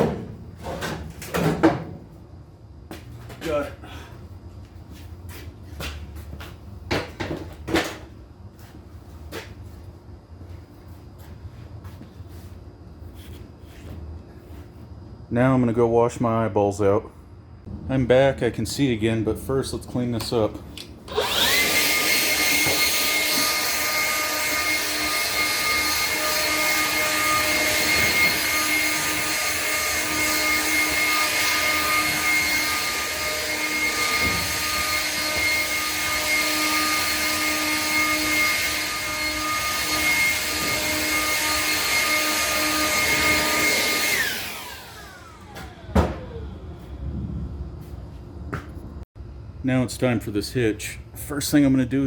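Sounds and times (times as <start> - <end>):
vacuum cleaner motor whine: 21.1 - 47.3.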